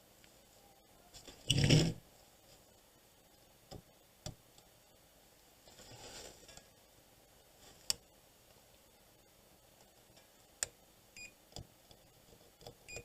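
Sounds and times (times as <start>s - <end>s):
multimeter continuity beep: 11.2s - 11.4s.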